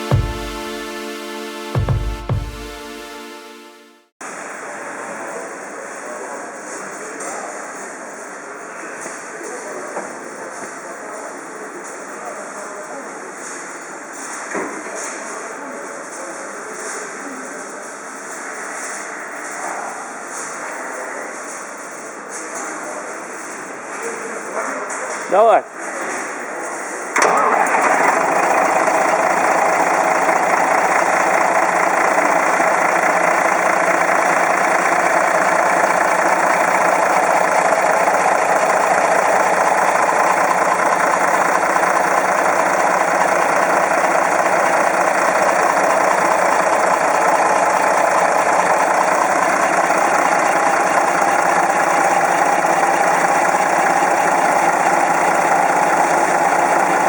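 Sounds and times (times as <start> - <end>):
diesel truck engine idling: 27.4 - 57.0.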